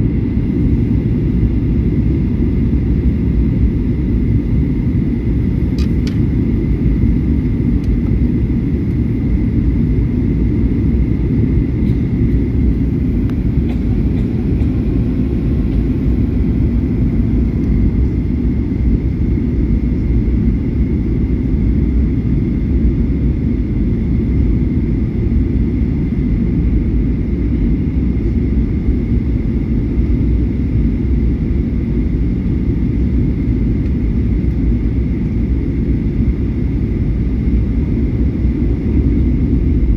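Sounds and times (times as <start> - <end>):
airplane cabin engine roar: 0.0 - 39.9
faint steady whine: 0.0 - 39.9.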